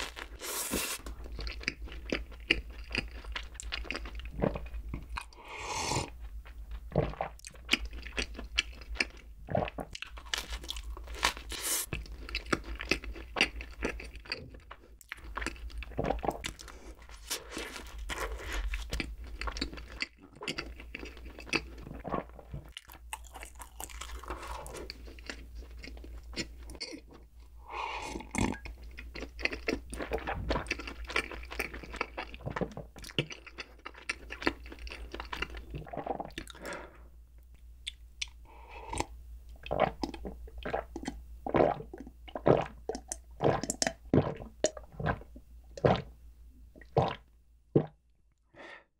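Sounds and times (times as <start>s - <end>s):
chewing soft bread: 0.0s - 5.4s, 6.0s - 46.0s.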